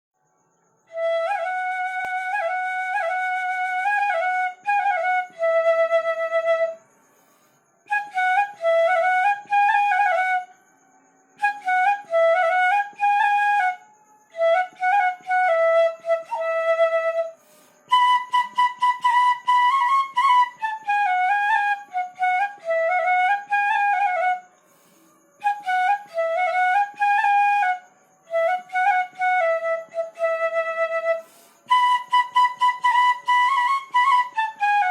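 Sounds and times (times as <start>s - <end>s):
bamboo flute melody: 0.8s - 34.9s
flute player breathing: 6.8s - 7.9s, 17.4s - 17.9s, 24.5s - 25.4s, 31.2s - 31.8s.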